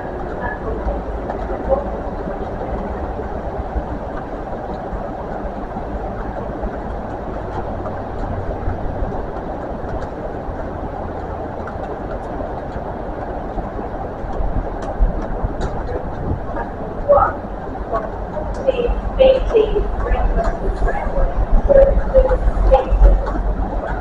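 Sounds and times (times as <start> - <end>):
train wheels rumbling on rails: 0.0 - 24.0
faint light ticks: 0.1 - 19.0.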